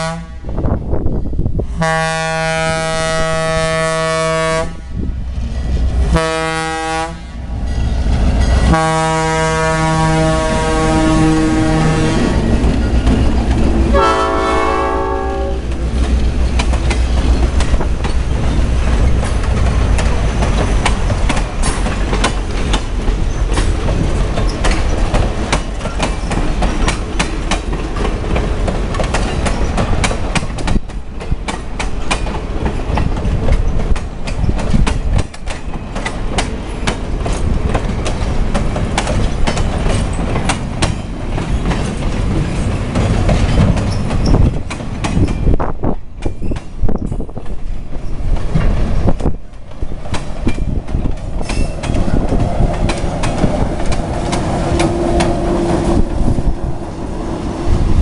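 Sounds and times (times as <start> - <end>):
train horn: 0.0 - 0.7, 1.8 - 4.9, 6.0 - 7.4, 8.6 - 12.5, 13.7 - 15.7
train wheels clacking over rail joints: 7.6 - 56.6.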